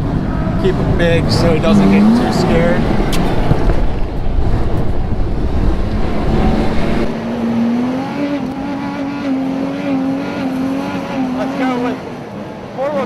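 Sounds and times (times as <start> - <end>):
heavy low rumble: 0.0 - 7.5.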